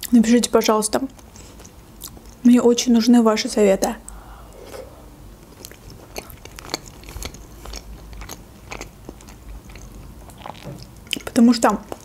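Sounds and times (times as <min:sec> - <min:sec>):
chewing with mouth clicks: 0:05.4 - 0:12.0.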